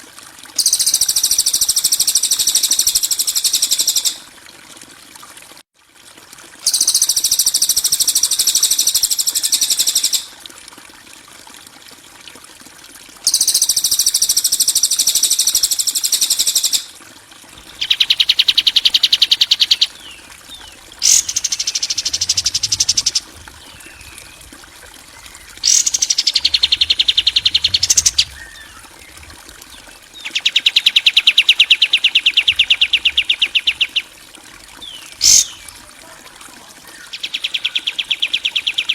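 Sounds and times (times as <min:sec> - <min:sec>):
bird trilling: 0:17.6 - 0:24.4, 0:25.2 - 0:29.1, 0:30.2 - 0:34.1, 0:34.8 - 0:35.6, 0:36.9 - 0:38.9.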